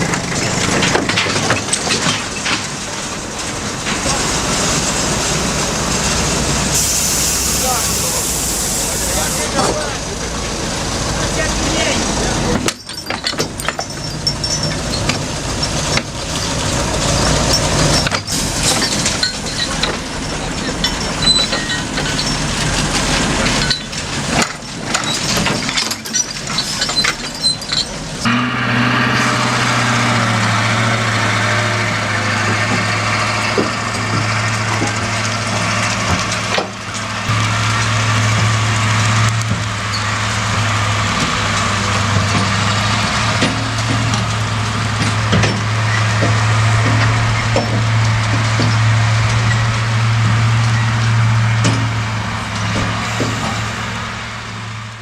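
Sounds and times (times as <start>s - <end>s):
metal clanks and knocks: 0.0s - 4.8s, 11.8s - 28.3s, 32.4s - 37.5s, 38.1s - 53.8s
heavy diesel machinery running: 0.0s - 55.0s.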